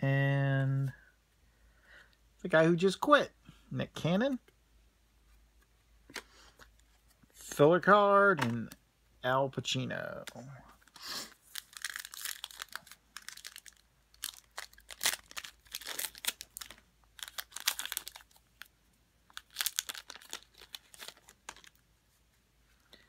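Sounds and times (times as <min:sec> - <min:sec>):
wrapper crinkling and tearing: 0:10.8 - 0:18.7, 0:19.3 - 0:21.8.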